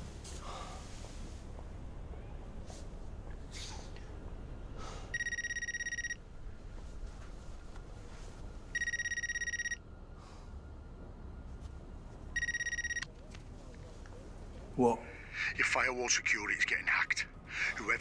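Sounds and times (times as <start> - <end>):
telephone ringing: 5.2 - 6.2, 8.8 - 9.8, 12.4 - 13.1.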